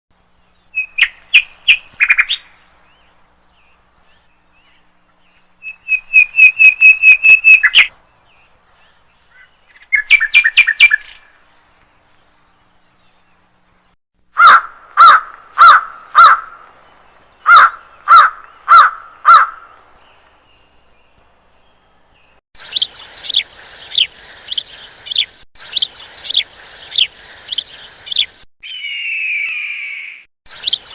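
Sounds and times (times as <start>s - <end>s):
bird whistling calls: 5.6s - 7.9s, 9.4s - 11.2s, 22.6s - 30.9s
steady hiss: 22.6s - 28.5s.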